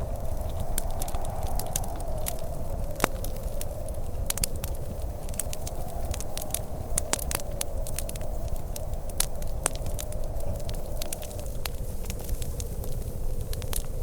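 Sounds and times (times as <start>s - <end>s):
steady low rumble: 0.0s - 14.0s
wood fire crackling and popping: 0.0s - 14.0s.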